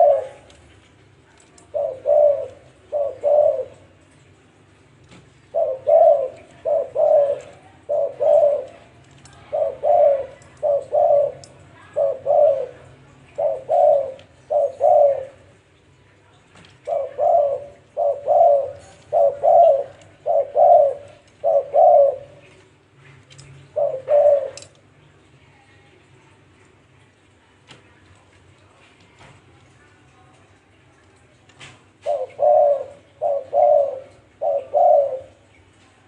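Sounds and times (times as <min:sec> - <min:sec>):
dove cooing: 0:00.0 - 0:04.2, 0:05.3 - 0:15.7, 0:16.8 - 0:22.7, 0:23.6 - 0:24.8, 0:31.9 - 0:35.6.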